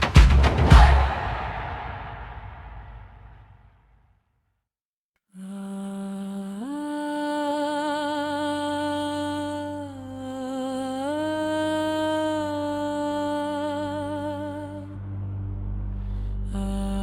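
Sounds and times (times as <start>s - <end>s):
low steady drone: 11.6s - 17.0s.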